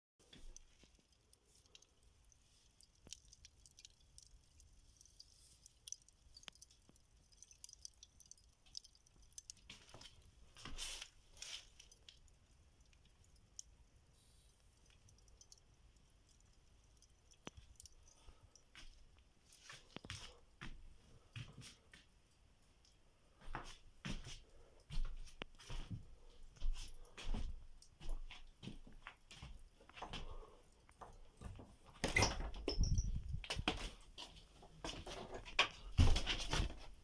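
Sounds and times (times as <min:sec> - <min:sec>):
faint clicks: 0:00.2 - 0:20.3
soft rustle: 0:00.2 - 0:32.0.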